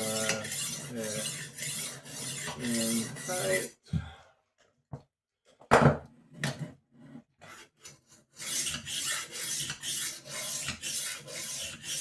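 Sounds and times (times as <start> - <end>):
knife sharpener rasping: 0.0 - 3.6, 7.6 - 12.0.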